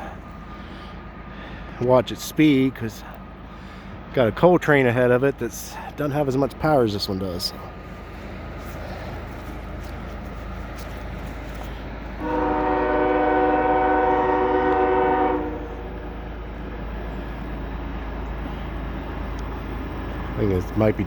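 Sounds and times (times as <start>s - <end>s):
low rumble of train: 0.0s - 21.0s
locomotive air horn blast: 12.2s - 16.2s.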